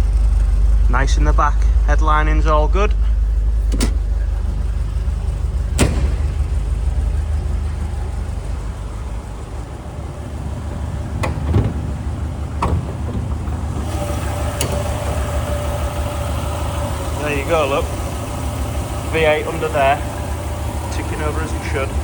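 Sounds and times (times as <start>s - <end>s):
car engine idling: 0.0s - 22.0s
sharp clicks and knocks: 3.6s - 4.6s, 5.6s - 6.6s, 11.1s - 15.6s.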